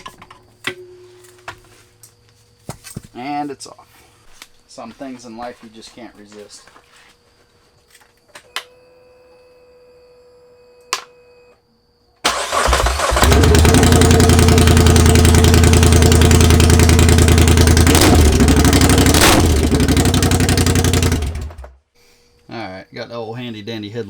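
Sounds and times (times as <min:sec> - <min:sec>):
faint electrical hum: 0:00.0 - 0:12.3, 0:21.8 - 0:24.0
unmuffled engine idling loudly: 0:12.7 - 0:21.7.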